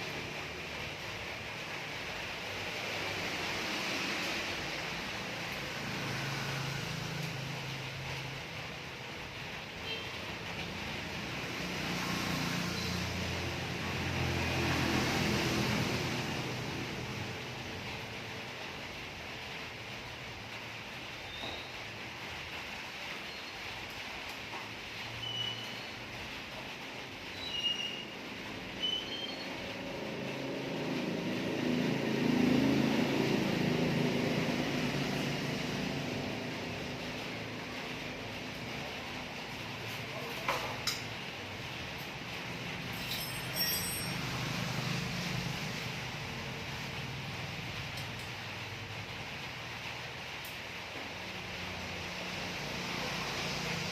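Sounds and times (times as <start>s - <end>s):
vehicle engine passing: 0.0s - 9.0s, 10.8s - 18.3s, 29.5s - 40.2s, 44.1s - 47.9s, 51.5s - 53.9s.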